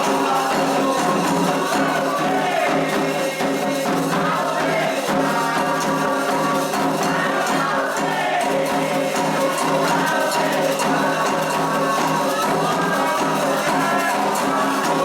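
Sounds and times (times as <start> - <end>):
hand drumming and percussion: 0.0 - 15.0
voices singing a chant: 0.0 - 15.0.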